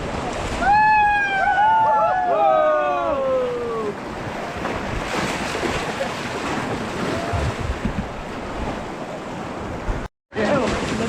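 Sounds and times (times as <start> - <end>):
river water rushing: 3.4 - 10.0
wind buffeting microphone: 3.9 - 10.1.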